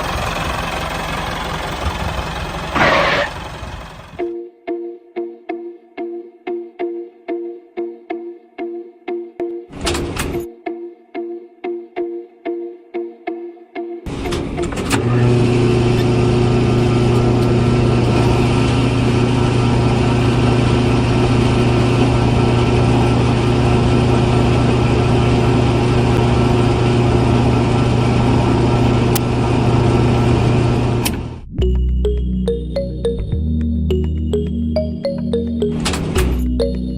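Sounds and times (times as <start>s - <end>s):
tractor motor humming and rattling: 0.0s - 4.2s, 14.1s - 31.5s, 35.2s - 36.9s.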